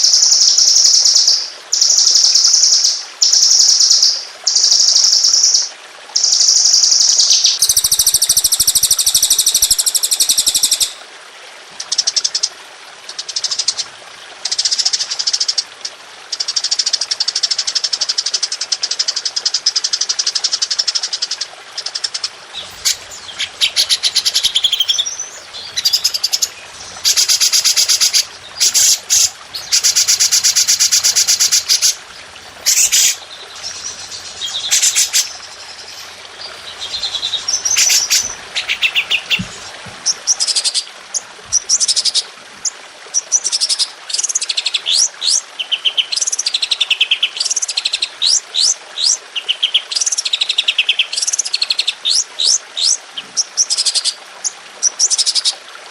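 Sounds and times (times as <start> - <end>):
songbirds trilling fast: 22.2 - 40.6.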